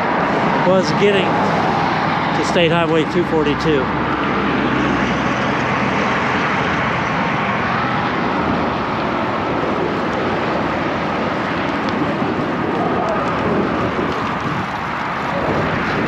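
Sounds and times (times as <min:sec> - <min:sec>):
road traffic roar: 0:00.0 - 0:16.0
wind on microphone: 0:03.9 - 0:16.0.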